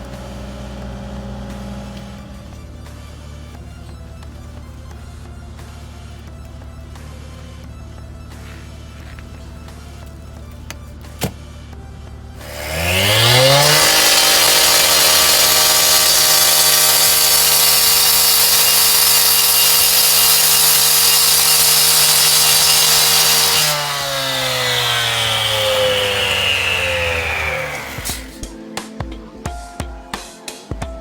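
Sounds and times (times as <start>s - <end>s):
gas-powered saw revving and cutting: 0.0s - 2.6s, 12.4s - 28.4s.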